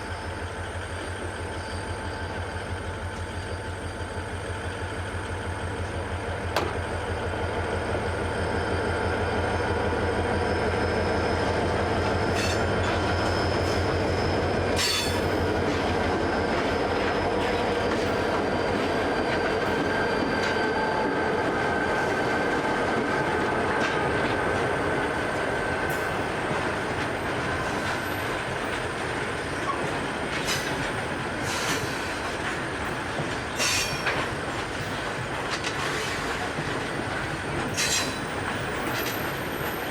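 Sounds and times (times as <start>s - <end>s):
diesel locomotives throbbing: 0.0s - 39.9s
train wheels squealing: 0.0s - 39.9s
wheels clacking over rail joints: 6.5s - 6.9s, 25.9s - 39.8s.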